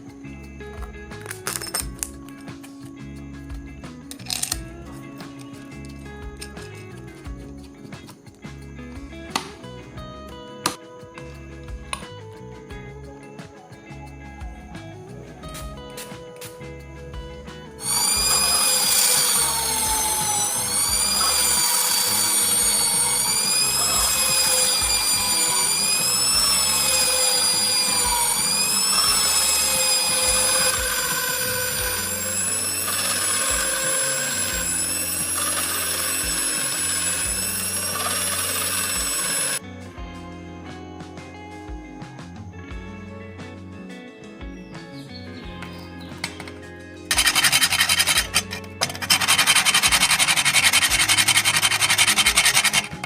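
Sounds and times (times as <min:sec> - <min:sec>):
guitar music: 0:00.0 - 0:53.0
power tool whining: 0:17.5 - 0:39.6, 0:46.2 - 0:53.0.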